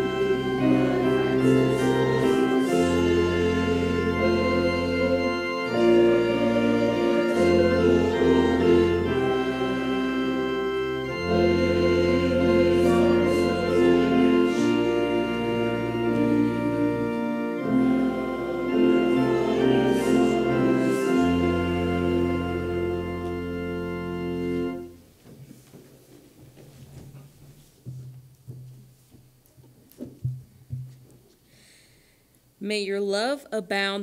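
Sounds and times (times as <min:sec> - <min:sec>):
organ playing slow chords: 0:00.0 - 0:25.1.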